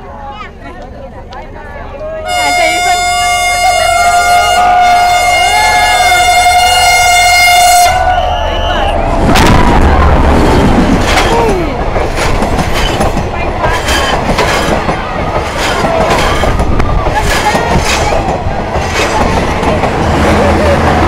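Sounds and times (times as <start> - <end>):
train rumbling past: 0.0 - 21.0
wheels clattering over rail joints: 10.4 - 21.0.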